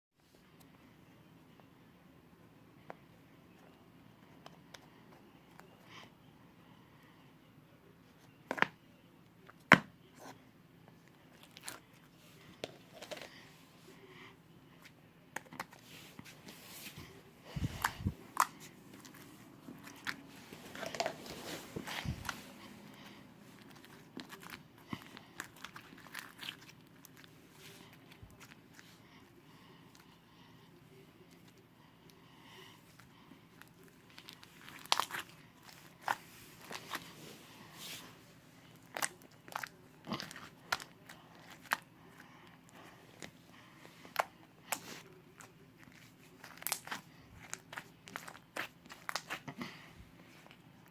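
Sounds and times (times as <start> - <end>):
slime squishing: 15.4 - 29.0, 33.6 - 38.1, 44.1 - 49.7.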